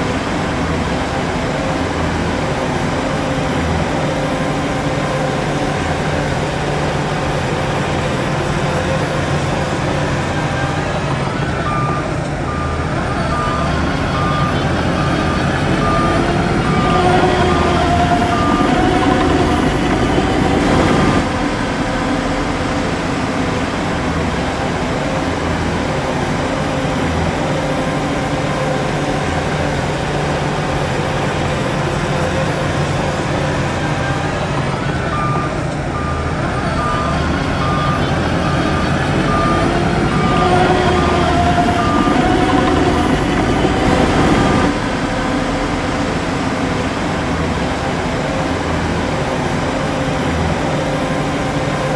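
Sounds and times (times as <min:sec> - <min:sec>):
heavy diesel machinery running: 0:00.0 - 0:51.9
reversing alarm beeping: 0:00.0 - 0:51.9.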